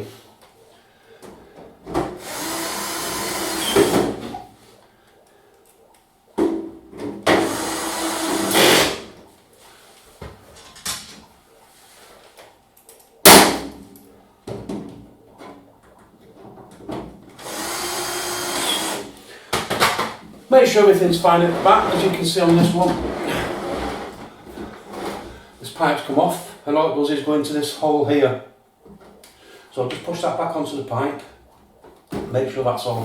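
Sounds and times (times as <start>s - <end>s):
drill driving screws into sheet metal: 2.2s - 4.1s, 7.3s - 9.0s, 17.4s - 19.1s.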